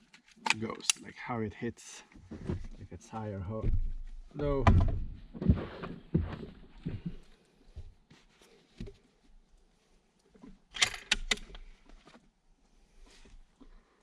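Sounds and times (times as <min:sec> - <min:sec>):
sharp rifle bolt clicks: 0:10.7 - 0:11.6.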